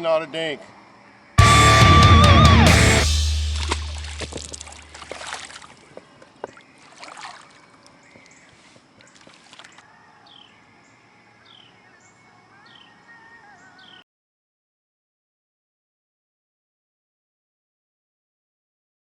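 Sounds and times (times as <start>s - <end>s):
bird calling falling high note: 1.4s - 4.9s
light water splashes: 3.4s - 9.9s.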